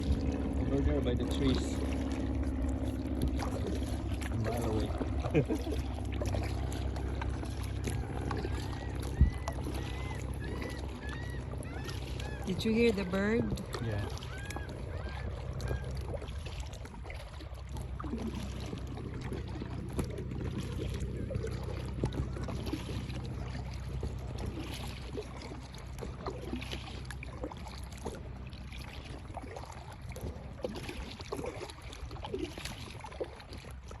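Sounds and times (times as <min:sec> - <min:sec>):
steady low rumble: 0:00.0 - 0:24.4
birds calling: 0:06.4 - 0:16.2.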